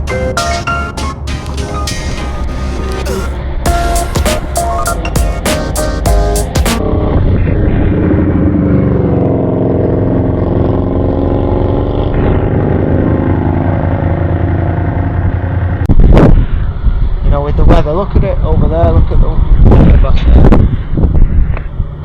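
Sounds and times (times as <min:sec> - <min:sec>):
wind rush on microphone: 0:06.8 - 0:11.1, 0:15.8 - 0:22.0.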